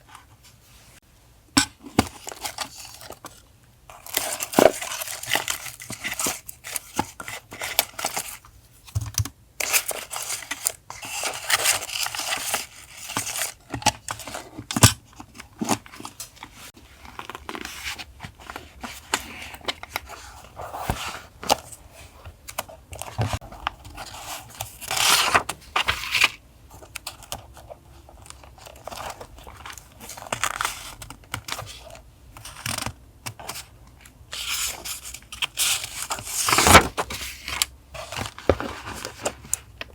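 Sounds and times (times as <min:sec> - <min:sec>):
paper rustling and crinkling: 0:09.6 - 0:33.6, 0:34.4 - 0:39.9.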